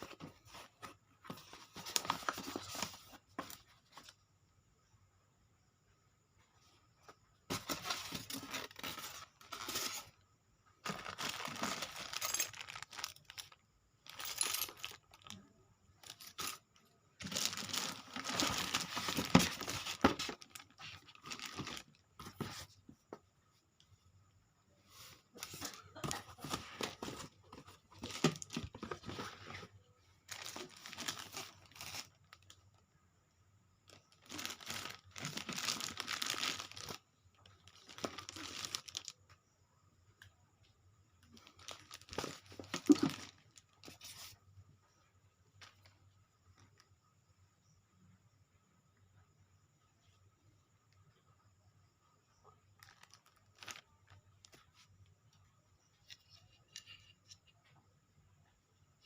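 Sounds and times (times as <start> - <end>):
packaging tearing and crinkling: 10.9 - 13.5, 17.2 - 21.9, 34.2 - 37.0.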